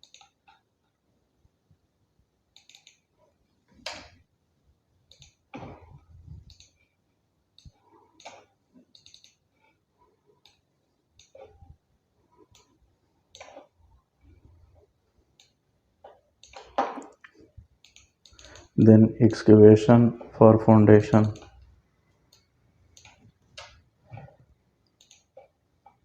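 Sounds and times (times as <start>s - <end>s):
mouse and keyboard clicks: 0.0s - 0.6s, 2.6s - 3.1s, 5.1s - 5.4s, 6.4s - 6.8s, 7.6s - 9.4s, 12.5s - 13.7s, 17.8s - 18.7s, 25.0s - 25.5s.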